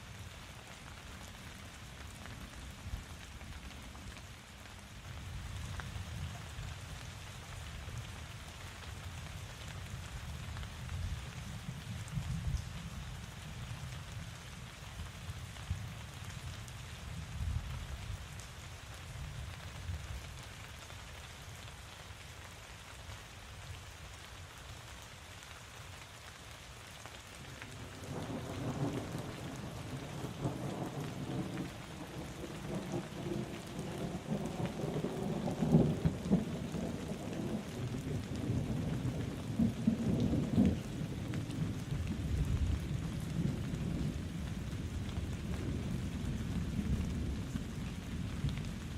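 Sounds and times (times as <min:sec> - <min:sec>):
steady rain falling: 0:00.0 - 0:48.9
rolling thunder rumble: 0:28.0 - 0:48.8.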